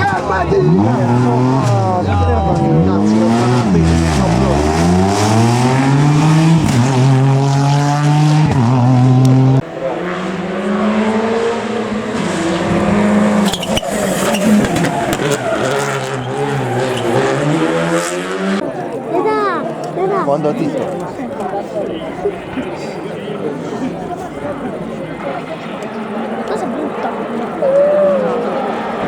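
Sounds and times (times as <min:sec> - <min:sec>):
rally car engine accelerating: 0:00.0 - 0:18.7.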